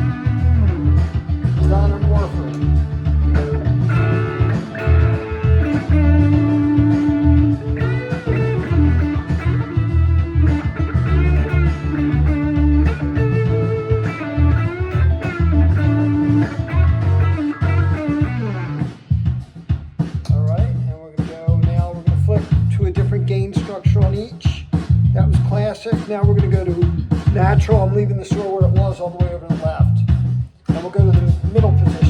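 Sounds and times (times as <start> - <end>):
distorted electric guitar lead: 0.0 - 19.4, 30.8 - 32.0
drum and bass backing track: 0.0 - 32.0.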